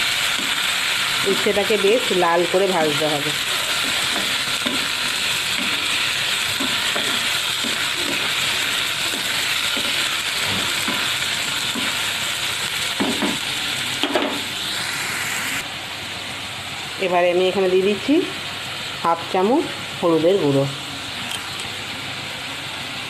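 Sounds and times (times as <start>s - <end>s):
vegetables sizzling in hot oil: 0.0s - 23.0s
wooden spatula scraping a pan: 6.6s - 12.0s.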